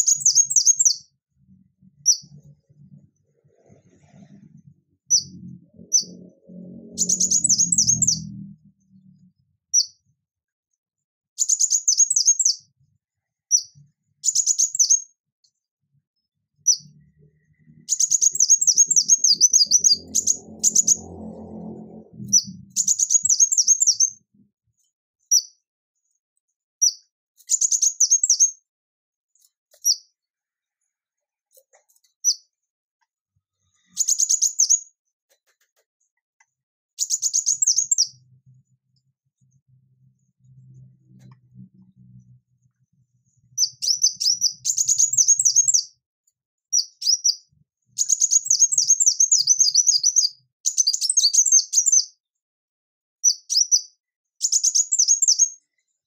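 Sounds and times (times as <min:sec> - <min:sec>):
sunbird singing trills: 0:05.1 - 0:08.4, 0:17.9 - 0:21.4, 0:22.3 - 0:24.1, 0:43.6 - 0:45.9.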